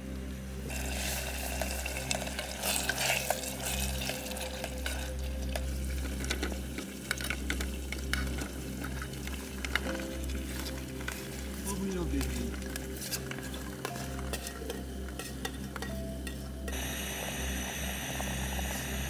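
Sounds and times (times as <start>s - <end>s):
masala sizzling in a pot: 0.0s - 19.0s
wooden spatula scraping pot: 7.1s - 16.5s.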